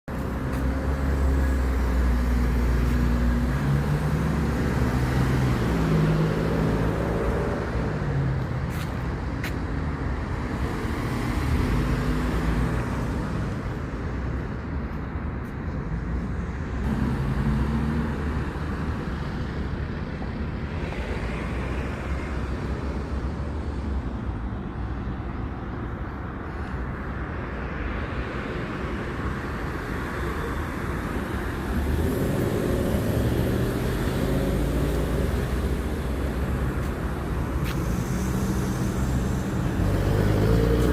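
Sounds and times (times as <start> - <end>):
low road rumble: 0.0 - 40.9
engine hum: 31.5 - 40.9.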